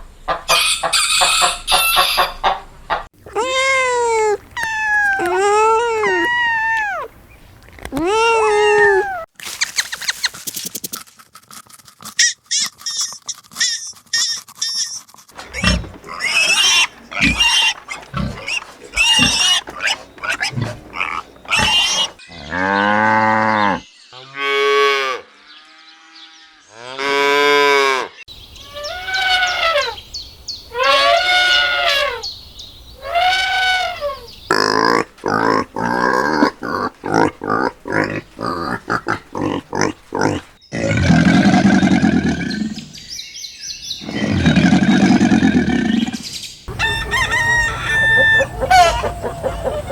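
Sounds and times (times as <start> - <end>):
animal calls: 3.2 - 10.4, 12.2 - 23.8, 28.6 - 30.1, 30.7 - 32.3, 33.0 - 43.0, 44.0 - 49.9.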